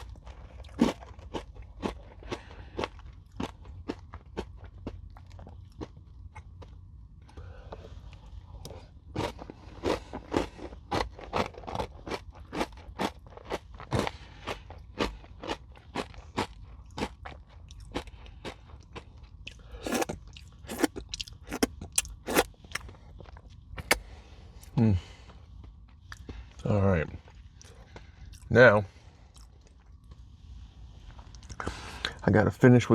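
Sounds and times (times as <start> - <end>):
crunchy granola bar chewing: 19.8 - 22.8.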